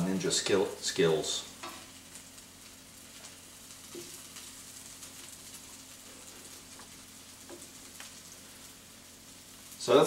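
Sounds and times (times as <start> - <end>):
sprouts sizzling in skillet: 0.0 - 10.0
spatula tapping pan: 6.7 - 8.1.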